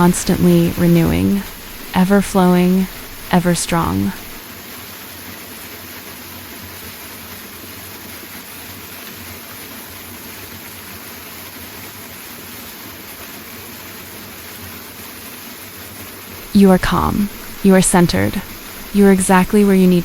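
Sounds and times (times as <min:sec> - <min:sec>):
waterfall rushing: 0:00.0 - 0:04.4, 0:16.4 - 0:20.0.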